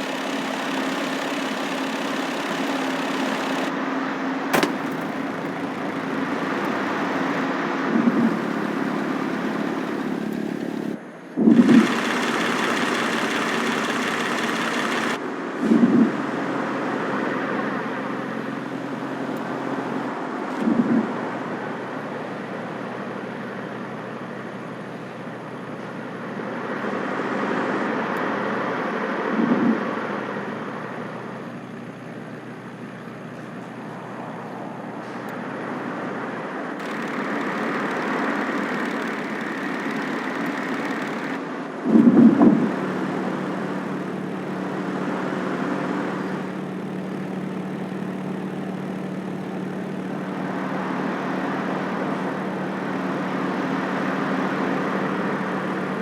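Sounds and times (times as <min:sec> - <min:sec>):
car engine running: 0:00.0 - 0:03.9, 0:04.5 - 0:15.2, 0:36.8 - 0:41.4, 0:42.2 - 0:56.0
short loud bursts: 0:04.6 - 0:15.2.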